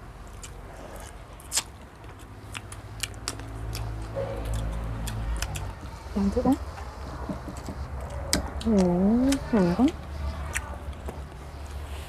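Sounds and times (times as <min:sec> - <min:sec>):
people biting and chewing: 0:00.0 - 0:12.0
low rumble: 0:03.5 - 0:10.2.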